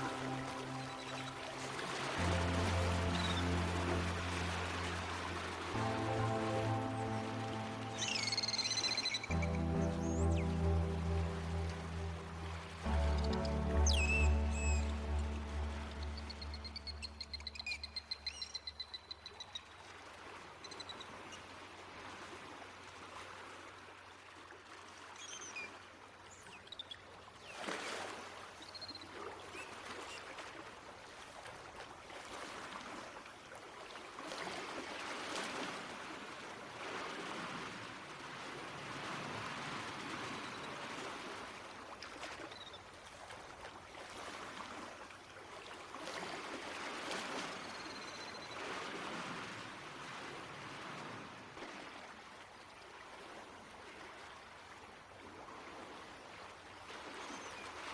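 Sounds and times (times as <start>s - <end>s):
sea water rushing and sloshing: 0.0s - 57.9s.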